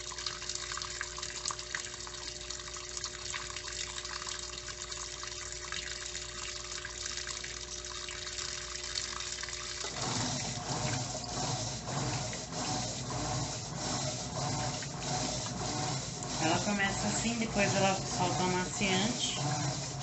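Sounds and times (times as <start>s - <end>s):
washing machine agitator churning: 0.0s - 20.0s
washing machine hum: 0.0s - 20.0s
water rushing into washing machine: 0.0s - 20.0s.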